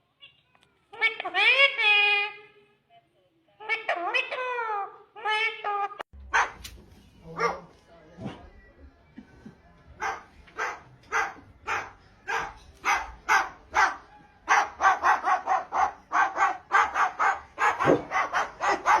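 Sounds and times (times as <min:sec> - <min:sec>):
dog barking: 0:06.3 - 0:06.7, 0:07.3 - 0:07.7, 0:10.0 - 0:19.0.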